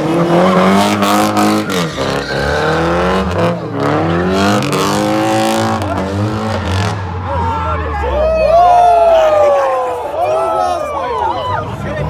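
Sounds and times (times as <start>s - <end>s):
car engine revving: 0.0s - 9.1s.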